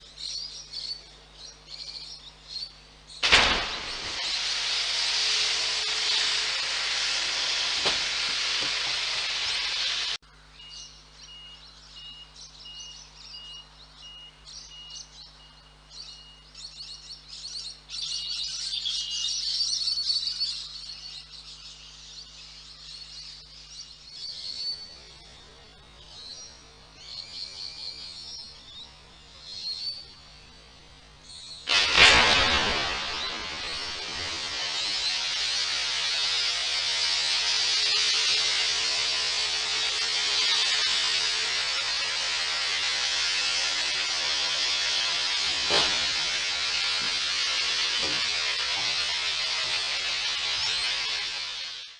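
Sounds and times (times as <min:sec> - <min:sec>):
truck unit crashing into bridge: 0:03.2 - 0:09.2, 0:31.7 - 0:51.5
loud hiss: 0:03.2 - 0:10.2, 0:24.1 - 0:51.9
steady low hum: 0:23.3 - 0:51.7.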